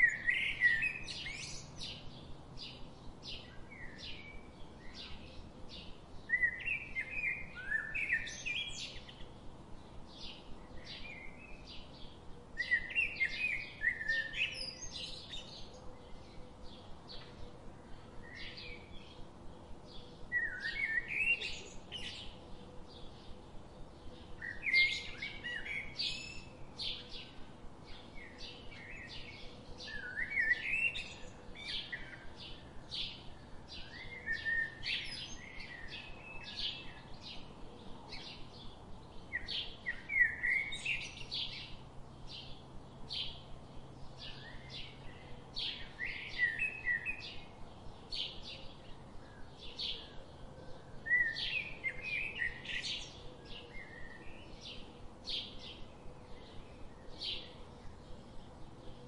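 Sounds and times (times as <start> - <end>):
warbled bird song: 0.0 - 59.0.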